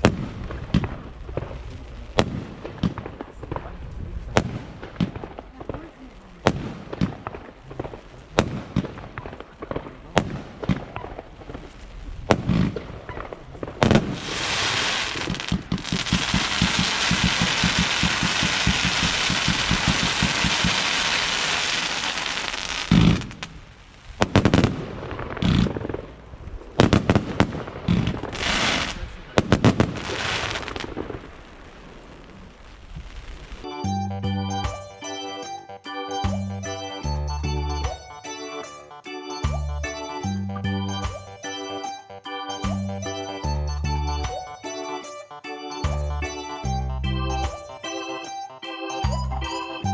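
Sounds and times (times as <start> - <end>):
firework bangs: 0.0 - 33.6
firework crackling: 0.0 - 33.7.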